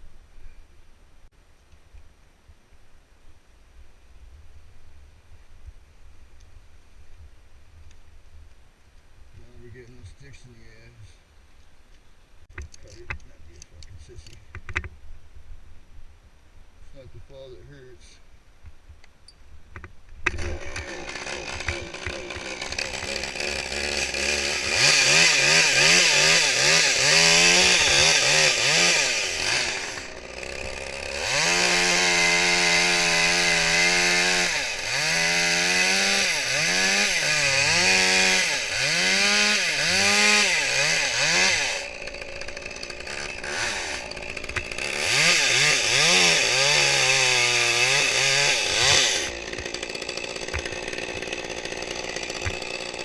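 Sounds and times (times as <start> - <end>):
chainsaw cutting wood: 20.2 - 53.0.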